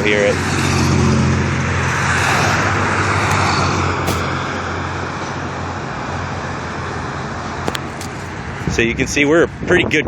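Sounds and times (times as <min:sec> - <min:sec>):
car passing: 0:00.0 - 0:06.5.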